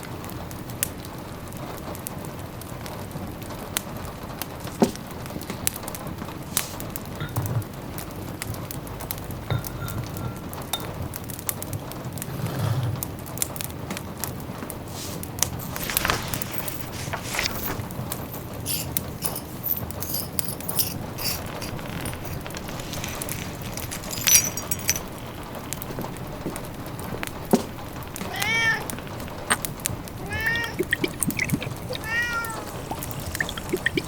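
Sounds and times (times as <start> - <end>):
wood fire crackling: 13.3 - 34.0
cat meowing: 28.2 - 29.2, 30.2 - 34.0.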